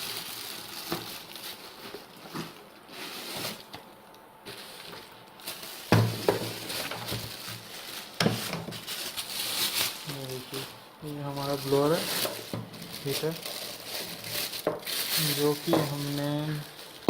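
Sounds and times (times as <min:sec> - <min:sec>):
packaging rustling: 0:00.0 - 0:17.0.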